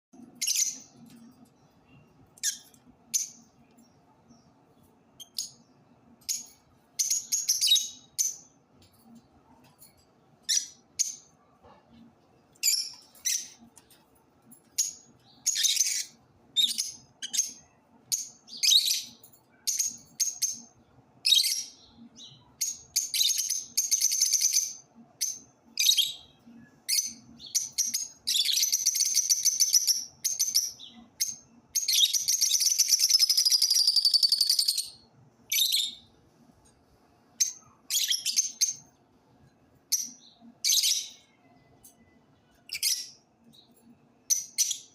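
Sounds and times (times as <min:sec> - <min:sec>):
lovebirds chirping: 0:00.2 - 0:09.2, 0:14.6 - 0:36.2, 0:37.4 - 0:39.0, 0:39.8 - 0:44.9.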